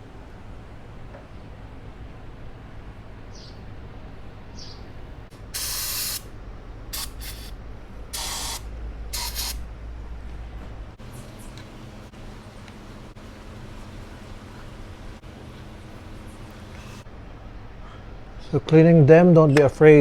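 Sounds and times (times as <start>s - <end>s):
aerosol spray hissing: 5.4s - 6.3s, 7.0s - 7.6s, 8.2s - 9.6s.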